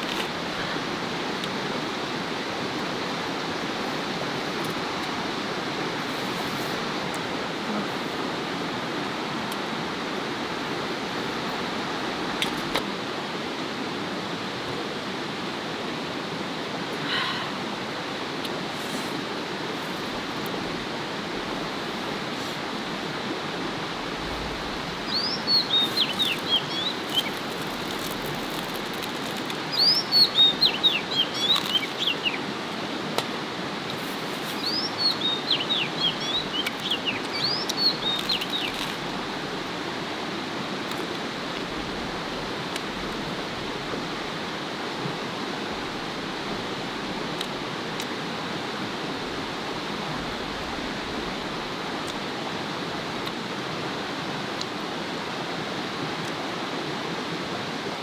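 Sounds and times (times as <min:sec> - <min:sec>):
flowing water: 0:00.0 - 0:58.0
songbird singing: 0:18.4 - 0:39.8.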